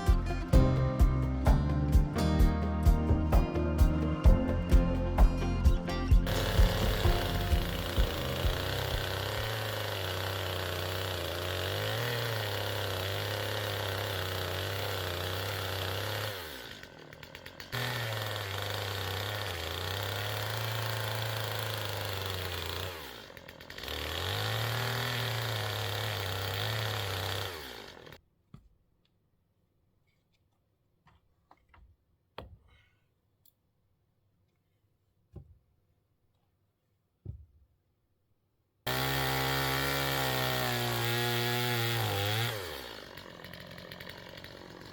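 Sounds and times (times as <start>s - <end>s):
chainsaw running at high revs: 0.0s - 28.2s, 38.9s - 44.9s.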